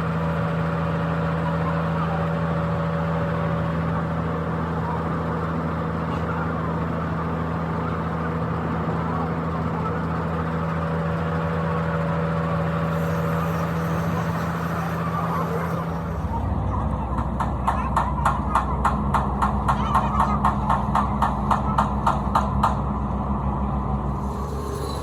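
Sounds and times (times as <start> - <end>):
rapid even knocking: 17.1 - 22.9.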